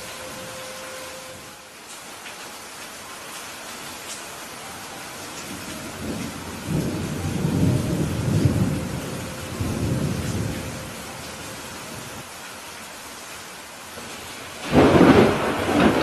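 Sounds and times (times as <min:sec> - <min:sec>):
steady rain: 0:00.0 - 0:16.0
rolling thunder: 0:05.5 - 0:12.2, 0:14.6 - 0:16.0.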